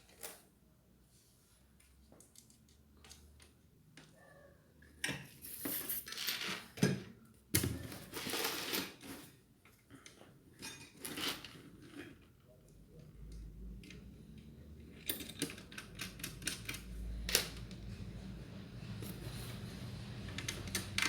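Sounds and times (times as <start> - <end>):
ceiling fan parts clinking and rattling: 13.9 - 21.0.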